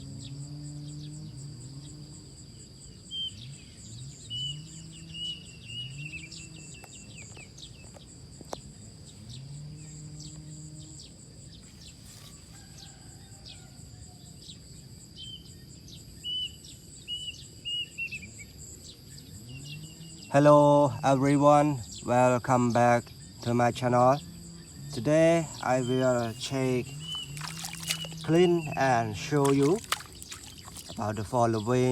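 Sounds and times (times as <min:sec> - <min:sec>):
insects droning: 0:00.0 - 0:31.9
bird chirping: 0:16.2 - 0:31.9.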